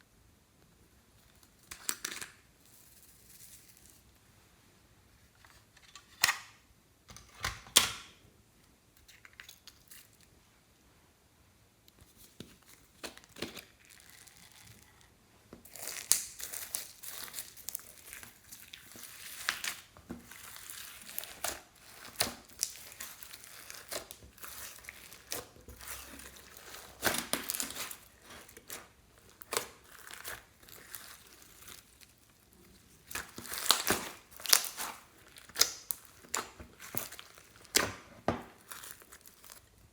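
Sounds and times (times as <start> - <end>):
slime crackling and popping: 12.6 - 39.8.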